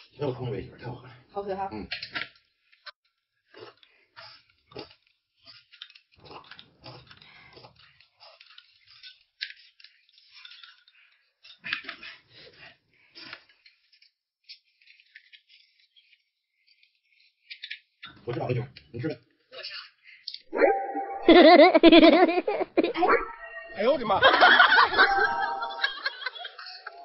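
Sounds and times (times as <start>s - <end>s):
person chewing and crunching: 3.5s - 9.8s.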